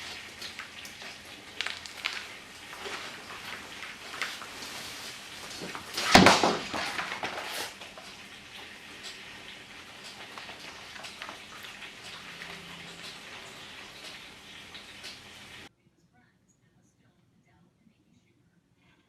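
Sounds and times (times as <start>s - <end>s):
steady hiss: 0.0s - 15.7s
loud clattering impact: 5.6s - 7.7s.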